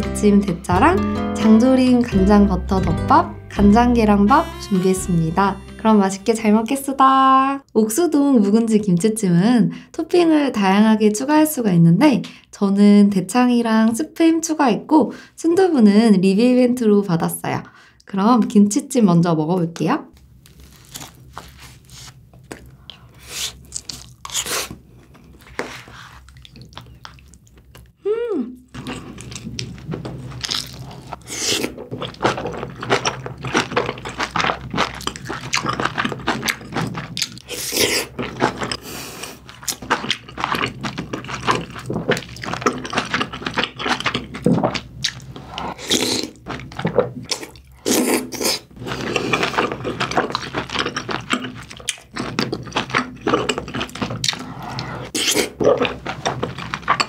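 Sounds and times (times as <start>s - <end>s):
wet chewing: 20.5s - 28.0s, 28.7s - 57.0s.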